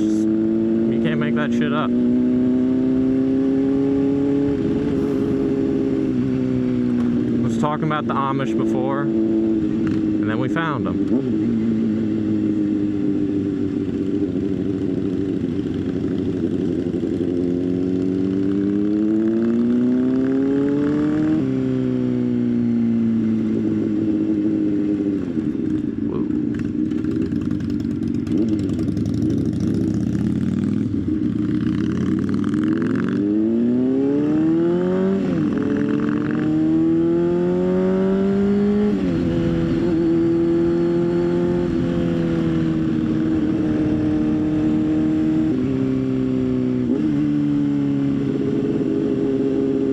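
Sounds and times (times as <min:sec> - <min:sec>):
motorcycle engine accelerating: 0:00.0 - 0:49.9
wind and road noise: 0:00.0 - 0:49.9.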